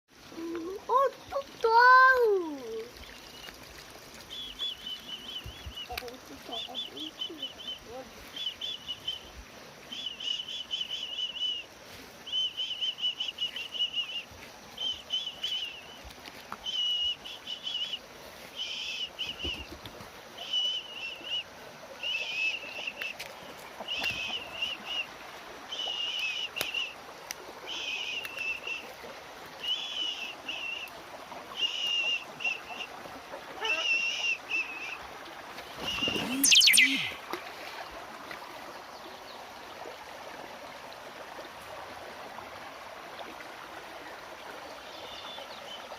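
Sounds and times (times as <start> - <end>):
bird calling in trilled phrases: 4.2 - 11.7, 33.6 - 35.0, 35.7 - 37.2.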